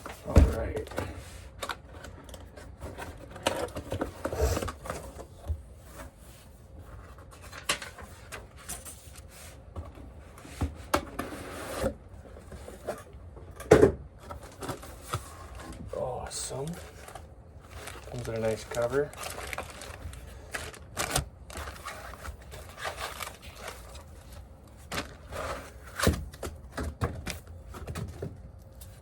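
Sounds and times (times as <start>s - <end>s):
cardboard packaging rubbing and sliding: 5.7s - 13.1s, 14.4s - 26.1s.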